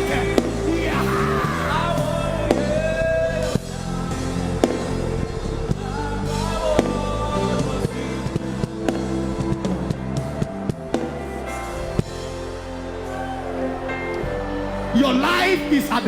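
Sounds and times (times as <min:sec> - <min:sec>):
live band music: 0:00.0 - 0:16.0
steady bass notes: 0:00.0 - 0:16.0.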